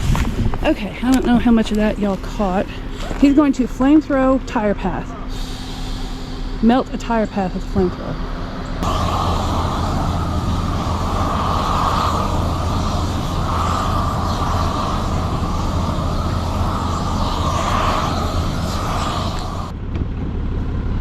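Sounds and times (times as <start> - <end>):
flamethrower torch roaring: 0.0 - 7.1, 8.2 - 19.8.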